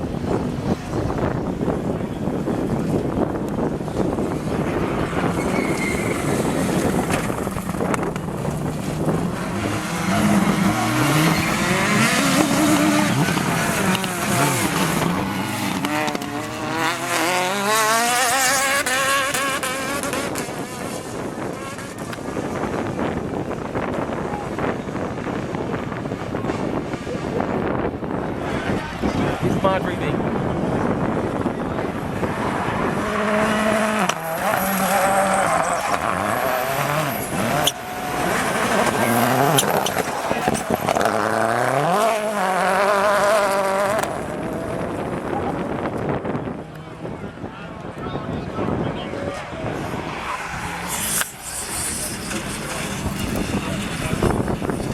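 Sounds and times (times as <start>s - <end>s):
rally car engine pulling hard: 0.0s - 54.9s.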